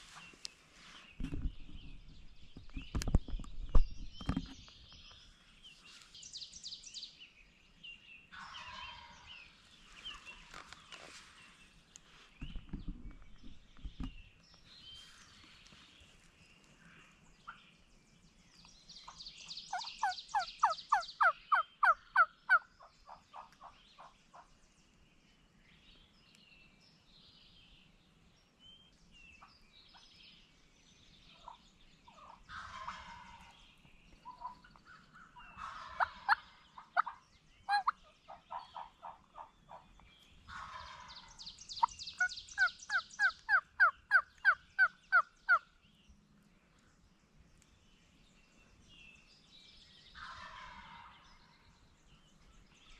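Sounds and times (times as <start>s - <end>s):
turkey gobbling: 8.4s - 9.2s, 19.8s - 22.6s, 32.2s - 33.5s, 35.5s - 39.9s, 40.5s - 41.2s, 42.6s - 45.6s, 50.2s - 51.2s
turkey yelps: 35.3s - 39.8s, 42.6s - 45.6s.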